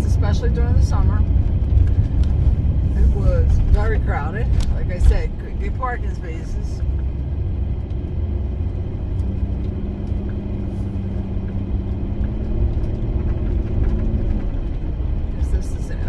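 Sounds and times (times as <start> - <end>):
road and engine rumble: 0.0 - 16.0.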